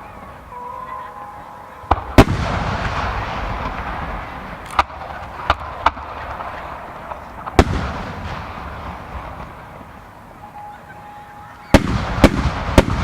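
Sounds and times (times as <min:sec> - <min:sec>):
firework bangs: 0:01.9 - 0:10.4, 0:11.6 - 0:13.0
firework crackle and rumble: 0:01.9 - 0:10.4, 0:11.7 - 0:13.0.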